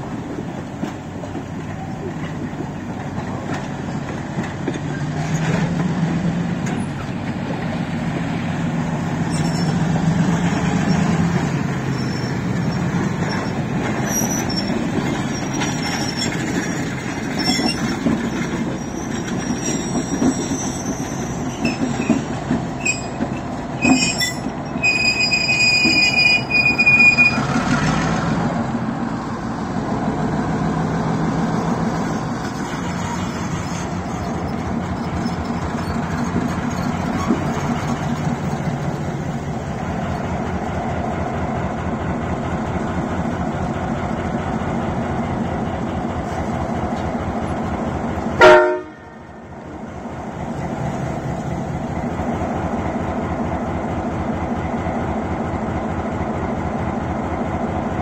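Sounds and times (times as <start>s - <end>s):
locomotive engine rumble: 0.0s - 58.0s
train wheels squealing on rails: 0.3s - 28.0s, 31.9s - 40.3s.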